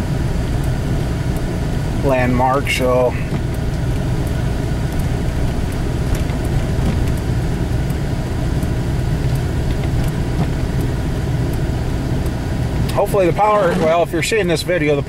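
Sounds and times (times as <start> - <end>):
vehicle engine and road rumble: 0.0 - 15.0
light ticks: 0.6 - 1.5, 3.3 - 13.0.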